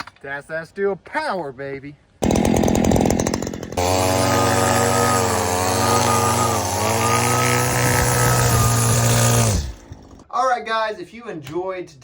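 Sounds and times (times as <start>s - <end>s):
string trimmer engine running: 2.2s - 10.2s.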